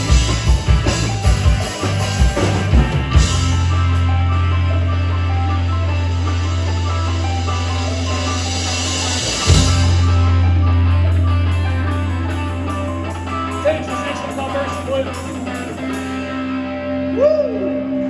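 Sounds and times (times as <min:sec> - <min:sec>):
picked guitar notes: 0:00.0 - 0:18.0
held low bass note: 0:03.1 - 0:14.7.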